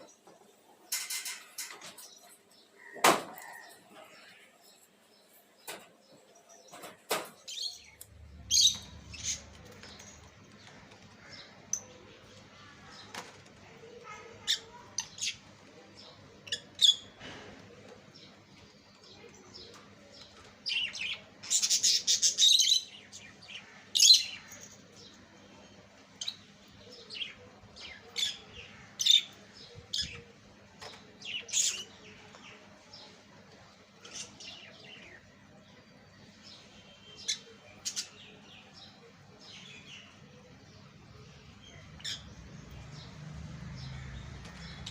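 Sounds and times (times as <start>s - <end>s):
lovebirds chirping: 0.0s - 13.1s, 26.2s - 44.9s.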